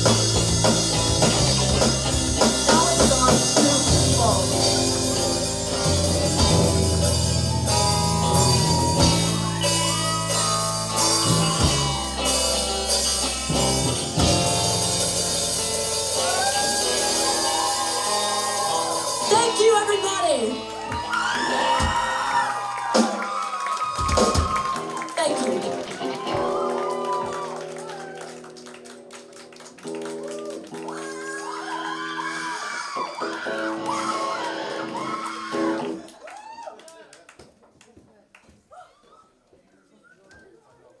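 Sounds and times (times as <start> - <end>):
live rock band playing: 0.0 - 23.4, 24.0 - 30.8.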